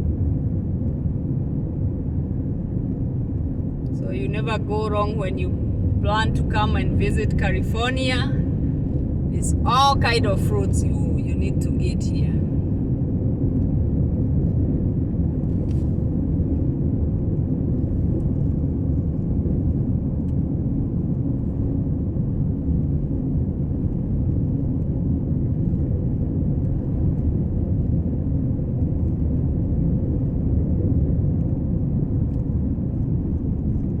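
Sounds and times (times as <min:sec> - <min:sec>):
moving car rumble: 0:00.0 - 0:34.0
road noise: 0:03.5 - 0:13.0.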